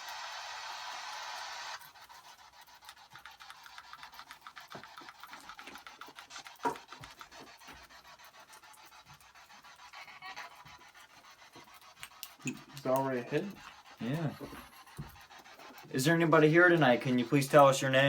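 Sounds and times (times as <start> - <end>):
radio sweep static ticks: 12.1 - 18.0.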